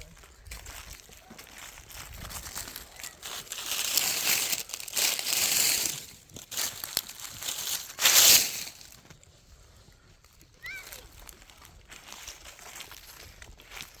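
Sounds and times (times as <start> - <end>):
crinkling crunching rustle: 0.2 - 9.2.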